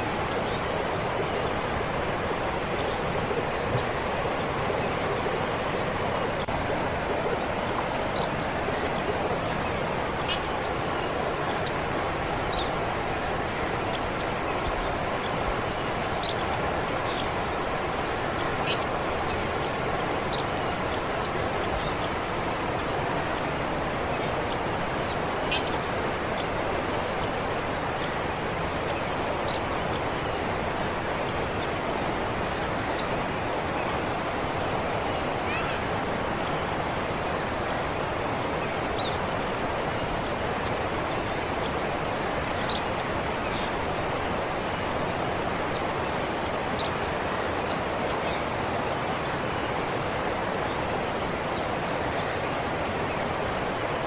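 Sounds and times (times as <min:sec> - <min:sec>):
small birds chirping: 0:00.0 - 0:54.0
stream flowing: 0:00.0 - 0:54.0.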